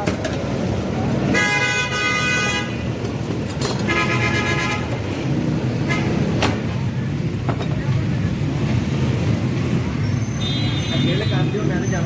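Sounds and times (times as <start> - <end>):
street traffic noise: 0.0 - 12.0
vehicle horn honking: 1.3 - 2.8, 10.4 - 11.6.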